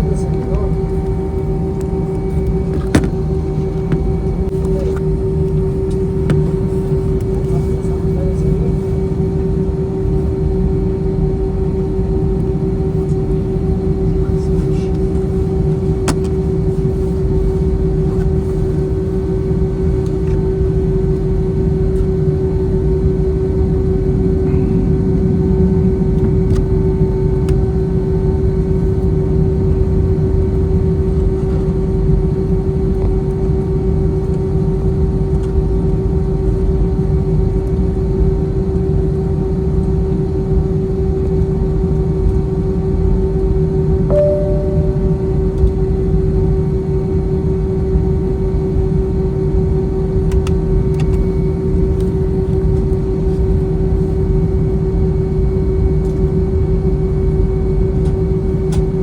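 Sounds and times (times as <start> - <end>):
airplane cabin drone: 0.0 - 59.0.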